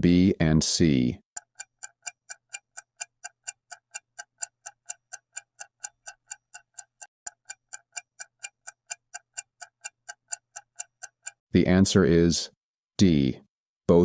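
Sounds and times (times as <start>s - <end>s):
countdown timer ticking: 1.3s - 11.7s.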